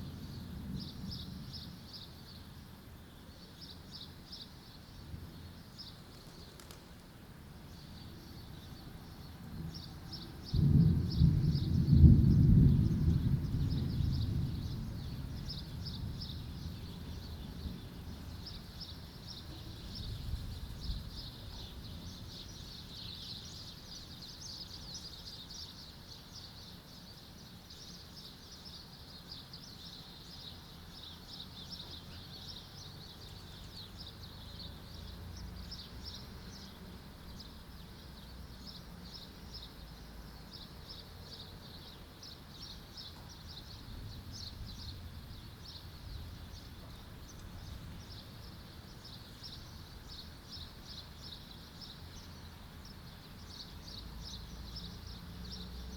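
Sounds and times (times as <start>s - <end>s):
thunder rumble: 9.5s - 18.4s.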